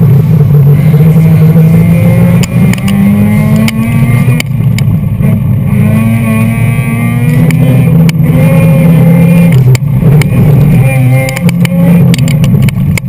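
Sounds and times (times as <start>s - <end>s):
rotary engine revving hard: 0.0s - 13.0s
sharp clicks: 2.4s - 3.0s, 11.2s - 13.0s.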